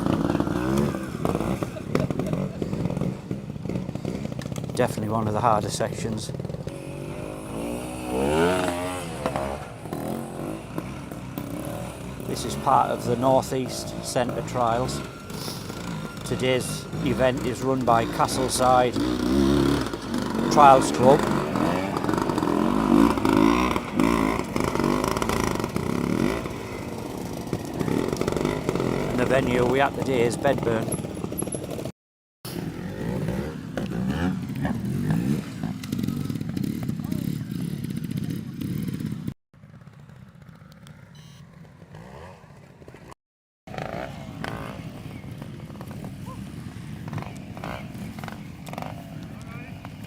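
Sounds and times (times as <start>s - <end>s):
motorcycle engine revving in blips: 0.0s - 31.9s, 32.5s - 50.0s.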